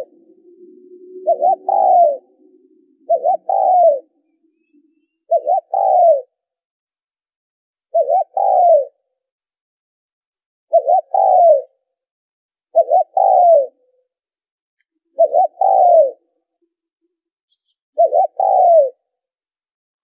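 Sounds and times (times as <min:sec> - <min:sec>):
dove cooing: 0:00.0 - 0:06.4, 0:07.9 - 0:09.0, 0:10.7 - 0:11.8, 0:12.8 - 0:13.8, 0:15.2 - 0:16.3, 0:18.0 - 0:19.0.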